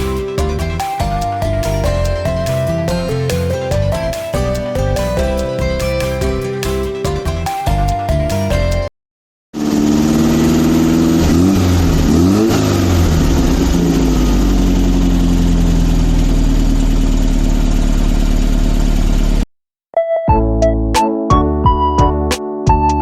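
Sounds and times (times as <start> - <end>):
car engine revving and idling: 9.6 - 19.4.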